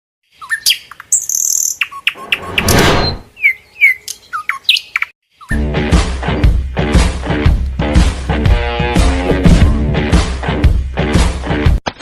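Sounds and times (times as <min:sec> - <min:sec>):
birds chirping and whistling: 0:00.3 - 0:05.7.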